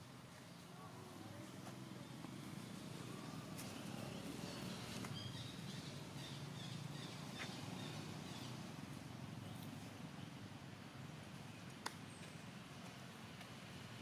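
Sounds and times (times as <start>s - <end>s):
faint outdoor background noise: 0.0s - 14.0s.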